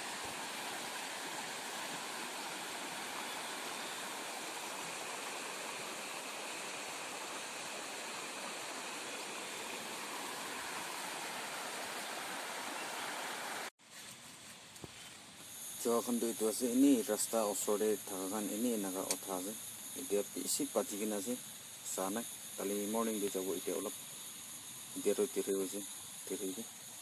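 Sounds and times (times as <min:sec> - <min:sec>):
water flowing: 0:00.0 - 0:13.7.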